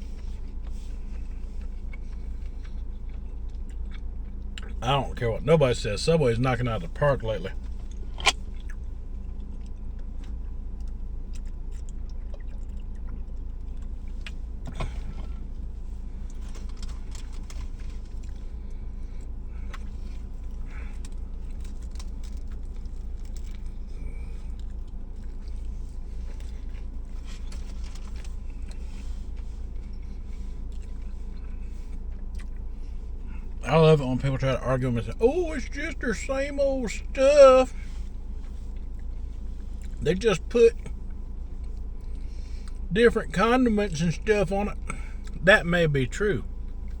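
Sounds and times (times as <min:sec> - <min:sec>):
person chewing: 0:00.0 - 0:04.8, 0:07.6 - 0:15.5, 0:16.2 - 0:33.4
low hum: 0:00.0 - 0:47.0.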